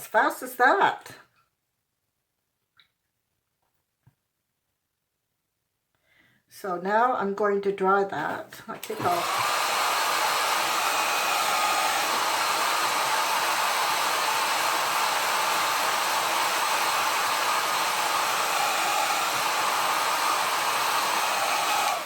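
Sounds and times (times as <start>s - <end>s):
blow dryer hissing: 8.8s - 22.0s.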